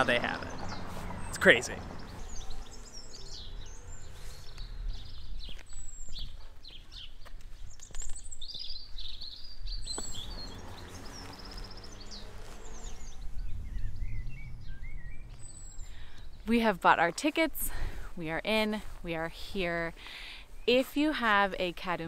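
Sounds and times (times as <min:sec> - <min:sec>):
songbirds chirping and singing: 0:00.0 - 0:17.3
steady low rumble: 0:10.1 - 0:17.0.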